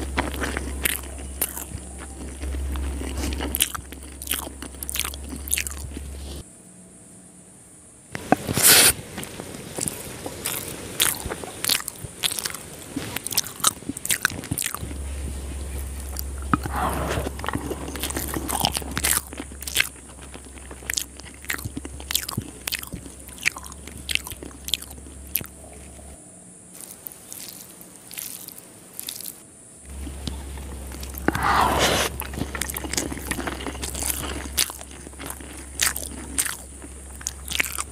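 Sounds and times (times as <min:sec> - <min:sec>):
close chewing with wet clicks: 0:00.0 - 0:06.4, 0:08.2 - 0:26.2, 0:26.8 - 0:37.9.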